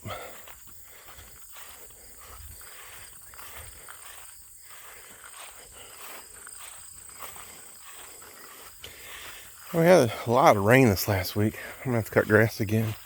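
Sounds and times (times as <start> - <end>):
faint footsteps outdoors: 0.0 - 13.0.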